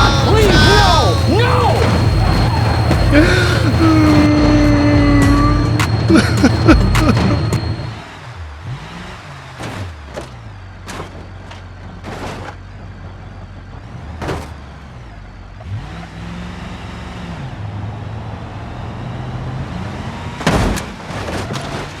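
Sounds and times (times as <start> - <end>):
cartoon engine hum: 0.0 - 9.1.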